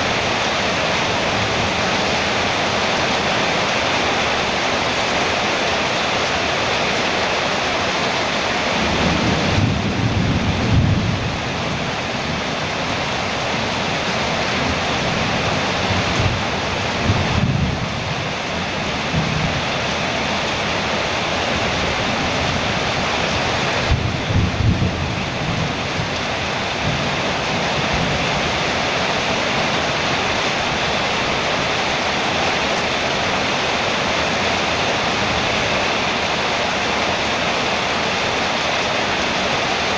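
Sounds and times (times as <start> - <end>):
rain on a metal roof: 0.0 - 39.9
thunder rumbling: 8.7 - 35.7.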